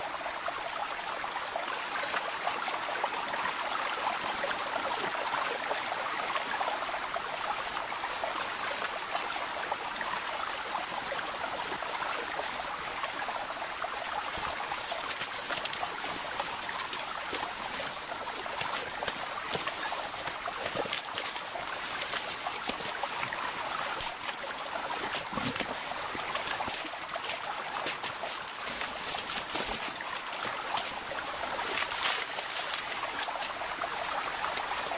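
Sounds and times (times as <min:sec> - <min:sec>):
heavy rain falling in forest: 0:13.6 - 0:34.9.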